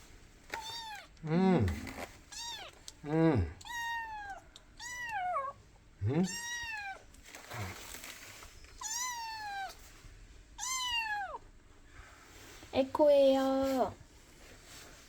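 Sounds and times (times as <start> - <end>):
kitten meowing: 0.6 - 1.1, 2.3 - 2.8, 3.6 - 5.6, 6.2 - 7.0, 8.8 - 9.8, 10.6 - 11.4.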